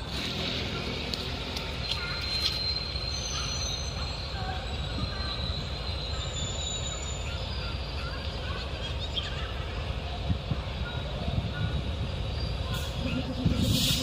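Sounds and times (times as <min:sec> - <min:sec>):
train low rumble: 0:00.0 - 0:14.0
high-pitched wheel squeal: 0:01.8 - 0:07.6.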